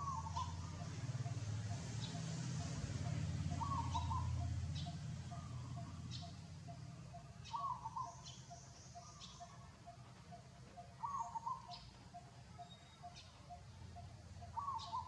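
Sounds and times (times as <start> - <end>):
short chattering animal calls: 3.0 - 15.0.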